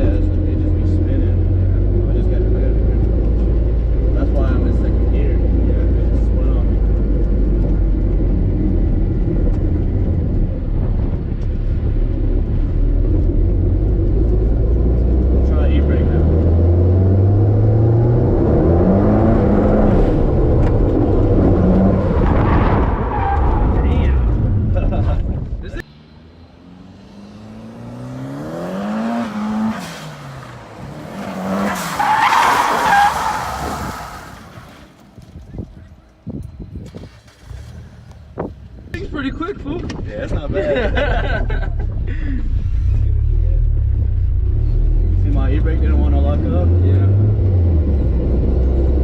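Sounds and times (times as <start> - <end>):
car engine and road rumble: 0.0 - 49.0
tyres squealing: 31.0 - 34.9.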